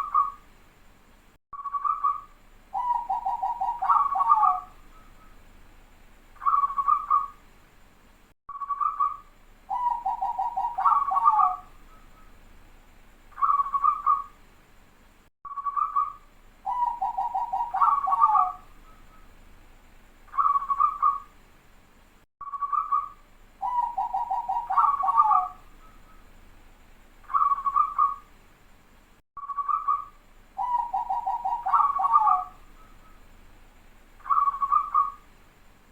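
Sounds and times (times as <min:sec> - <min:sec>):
dove cooing: 0:02.8 - 0:05.1, 0:09.7 - 0:12.0, 0:16.7 - 0:19.2, 0:20.4 - 0:21.3, 0:22.7 - 0:26.2, 0:27.3 - 0:28.3, 0:30.6 - 0:33.2, 0:34.2 - 0:35.2.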